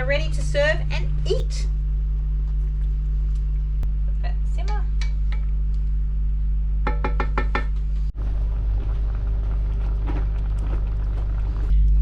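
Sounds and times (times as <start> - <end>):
steady low hum: 0.0 - 12.0
utensil tapping a cooking pot: 6.9 - 7.7.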